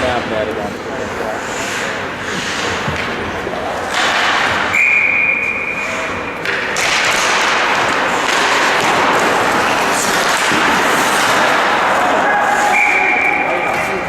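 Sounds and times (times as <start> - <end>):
arena crowd noise: 0.0 - 14.0
referee's whistle blast: 4.7 - 5.9, 12.7 - 13.6.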